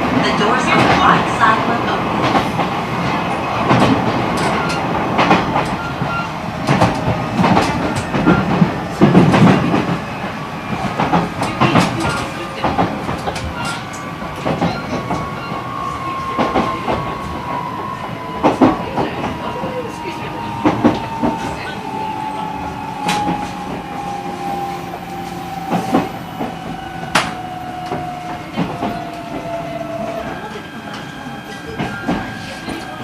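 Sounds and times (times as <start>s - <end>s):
train wheels clacking over rail joints: 2.2s - 10.0s.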